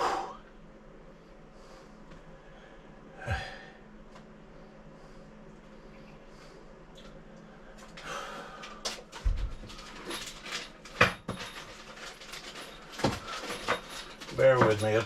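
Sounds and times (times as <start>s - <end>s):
plastic parts clicking and rustling: 7.8s - 15.0s.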